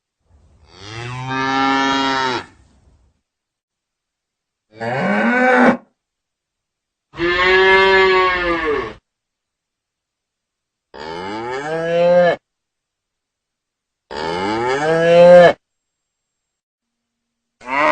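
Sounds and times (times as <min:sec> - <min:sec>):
cow mooing: 0:07.2 - 0:09.0, 0:14.1 - 0:15.6, 0:17.6 - 0:17.9.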